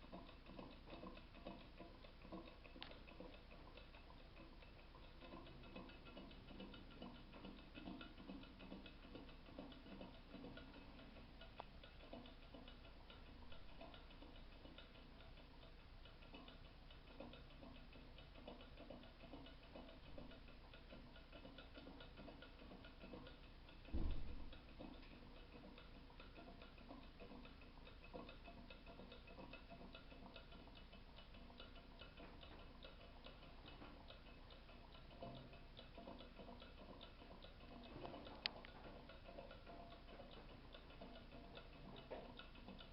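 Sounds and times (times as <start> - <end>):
small engine fan ticking: 0.0 - 42.9
low thump: 24.0 - 24.4.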